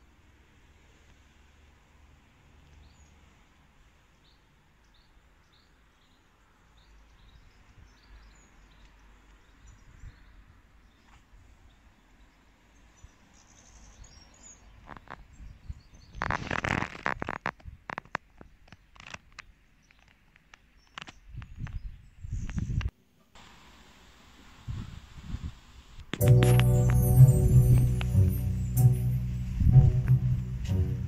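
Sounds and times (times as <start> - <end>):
low rumble: 26.2 - 31.0.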